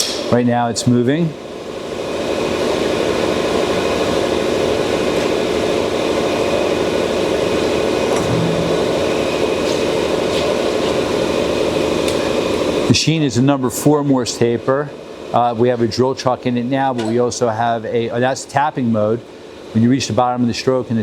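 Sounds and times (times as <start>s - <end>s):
mill-drill motor and gears humming: 1.5s - 12.9s.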